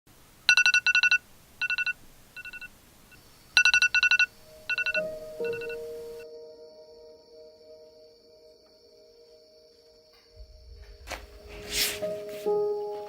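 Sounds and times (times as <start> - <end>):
rapid high beeps: 0.5 - 2.7, 3.6 - 5.8
low synthesized tone: 10.3 - 11.8.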